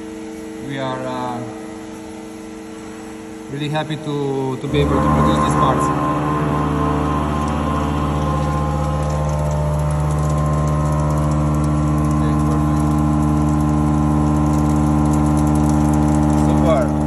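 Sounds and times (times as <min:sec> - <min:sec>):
milling machine humming: 0:04.6 - 0:17.0.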